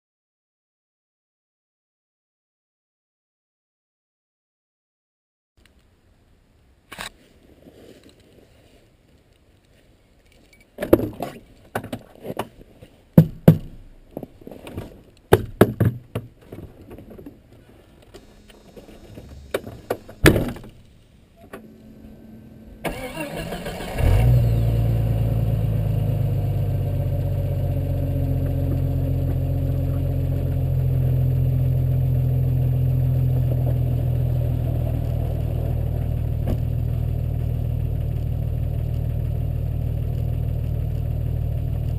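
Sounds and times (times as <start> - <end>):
car engine starting and idling: 21.5 - 41.9.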